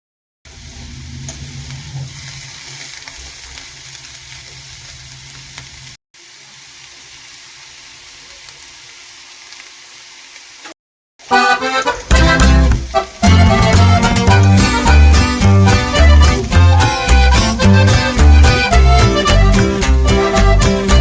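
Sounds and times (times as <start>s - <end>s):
food sizzling in a pan: 0.5s - 19.9s
loud music: 11.3s - 21.0s.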